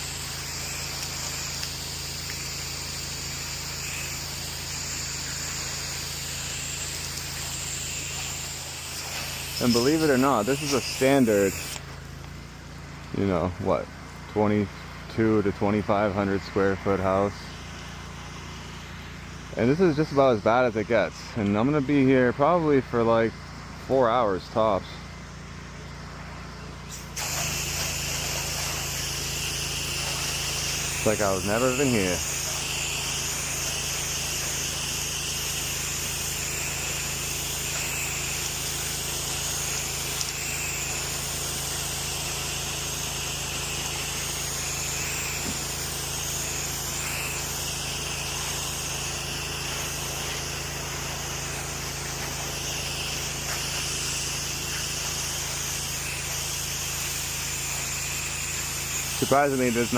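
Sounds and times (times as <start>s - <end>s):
water spray hissing: 0.0s - 12.5s, 26.9s - 59.9s
pressure washer motor humming: 0.0s - 59.9s.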